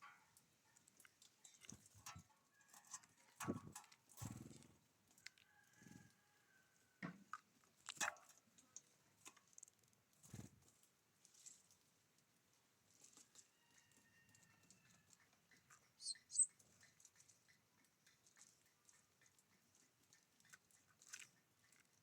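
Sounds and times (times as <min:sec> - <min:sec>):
birds pecking and hopping: 0:00.0 - 0:22.0
thin bird call: 0:15.8 - 0:16.6.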